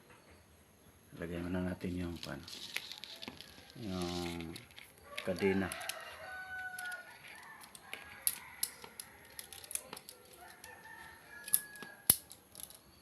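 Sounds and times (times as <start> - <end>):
saw chain clicks and rattles: 2.2 - 12.9
rooster crowing: 5.0 - 12.1.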